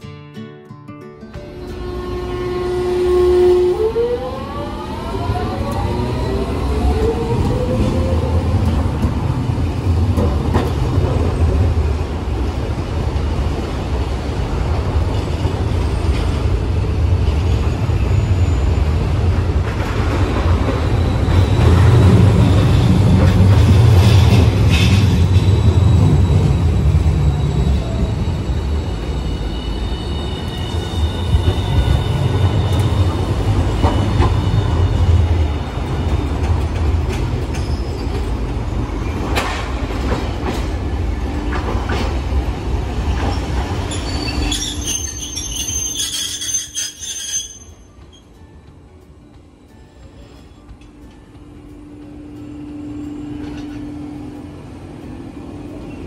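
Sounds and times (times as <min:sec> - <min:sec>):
streetcar low rumble: 0:01.3 - 0:56.0
high-pitched wheel squeal: 0:43.4 - 0:47.9.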